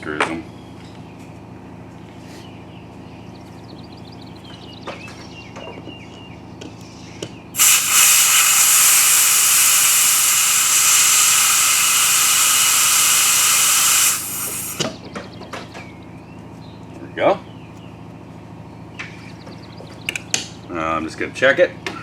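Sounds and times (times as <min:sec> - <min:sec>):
compressed air hissing into tire: 0:07.6 - 0:14.9.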